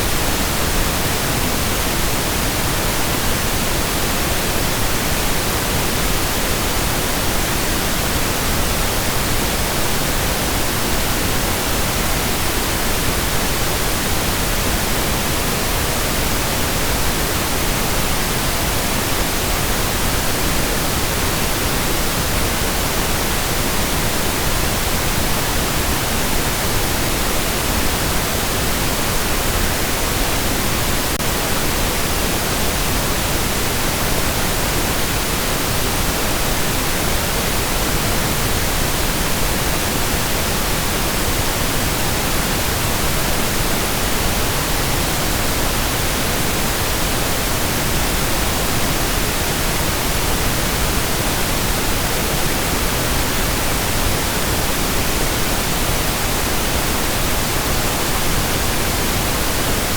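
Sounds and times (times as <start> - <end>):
pink noise hiss: 0.0 - 59.9.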